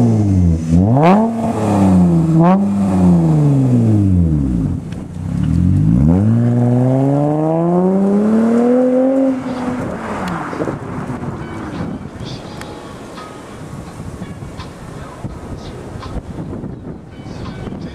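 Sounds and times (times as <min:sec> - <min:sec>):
car engine revving: 0:00.0 - 0:12.4.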